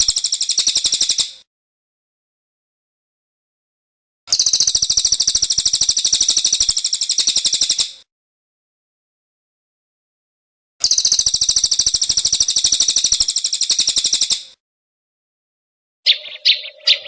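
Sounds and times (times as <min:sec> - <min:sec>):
songbird chattering call: 0:16.1 - 0:17.0.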